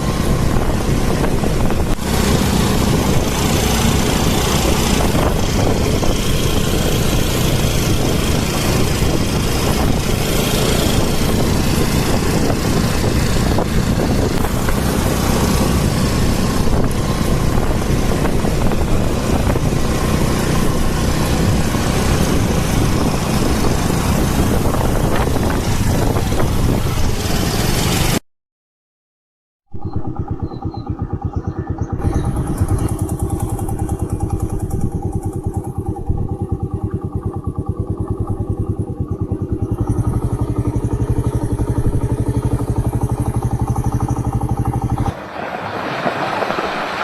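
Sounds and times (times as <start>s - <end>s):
rush of wind: 0.0s - 28.2s, 44.8s - 47.0s
vehicle running: 0.0s - 28.2s, 29.8s - 47.0s.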